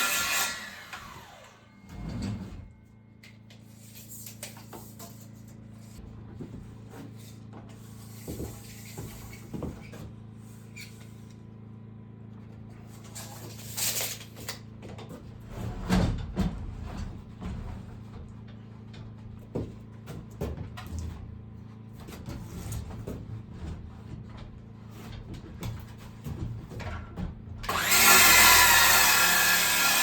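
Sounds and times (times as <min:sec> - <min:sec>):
knocks and scrapes of tools: 0:01.2 - 0:11.4.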